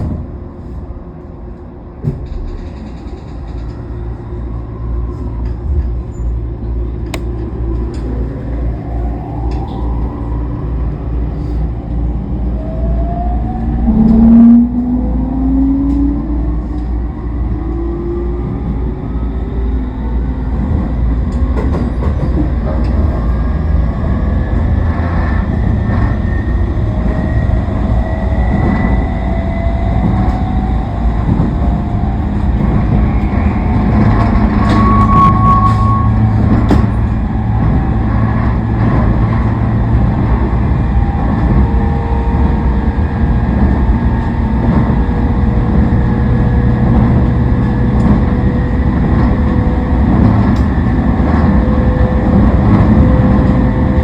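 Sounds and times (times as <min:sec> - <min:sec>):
train wheels rumbling on rails: 0:00.0 - 0:54.0
short high squeal: 0:34.5 - 0:36.4.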